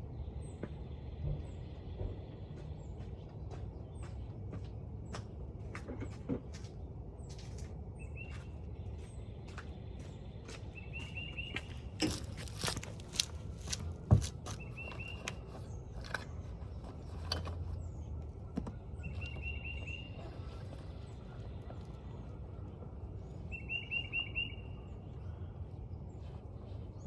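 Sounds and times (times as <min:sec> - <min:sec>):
small bird chirping: 0:18.6 - 0:22.2.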